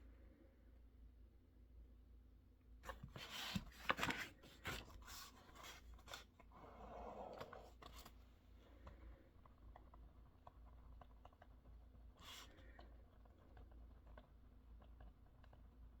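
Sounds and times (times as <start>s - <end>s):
objects rustling and scraping on desk: 2.8s - 8.2s.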